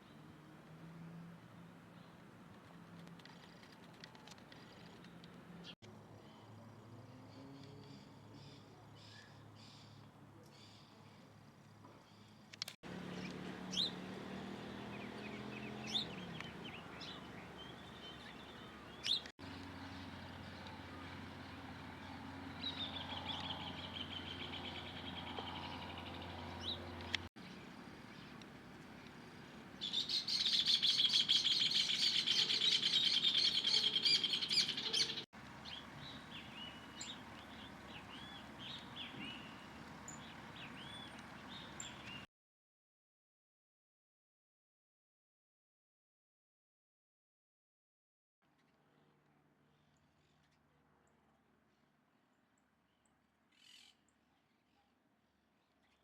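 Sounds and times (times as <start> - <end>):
small birds chirping: 12.0 - 42.3.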